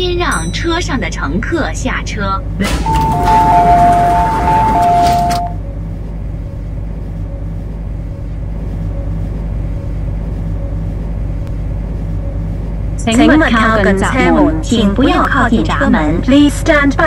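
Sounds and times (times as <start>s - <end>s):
low hum of train equipment: 0.0s - 17.0s
two-tone chime: 2.8s - 5.6s.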